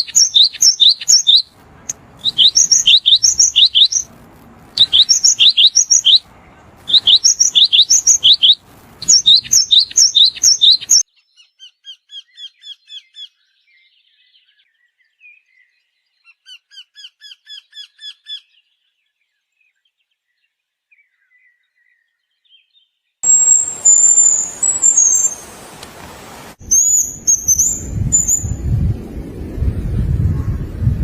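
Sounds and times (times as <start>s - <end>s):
bird chirping rapidly: 0.0s - 11.0s, 23.2s - 25.8s, 26.6s - 28.8s.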